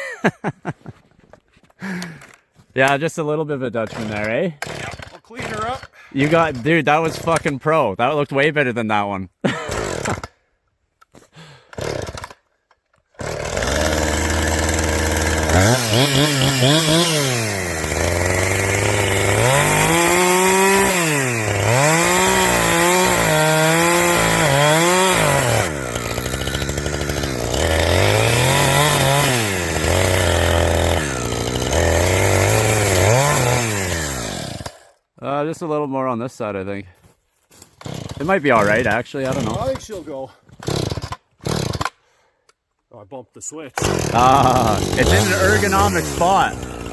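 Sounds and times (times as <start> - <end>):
chainsaw revving: 3.9 - 7.5, 9.5 - 10.4, 11.7 - 12.4, 13.2 - 35.0, 37.8 - 39.9, 40.5 - 42.0, 43.8 - 46.9.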